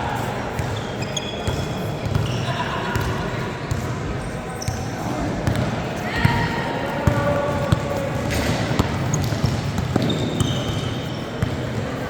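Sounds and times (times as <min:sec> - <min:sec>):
basketball bouncing on gym floor: 0:01.4 - 0:02.4, 0:05.4 - 0:11.6.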